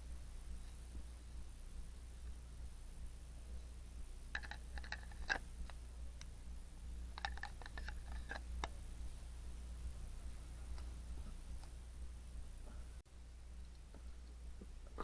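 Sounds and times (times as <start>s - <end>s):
steady low hum: 0.0s - 15.0s
small sharp clicks and taps: 4.3s - 6.4s, 7.1s - 8.8s.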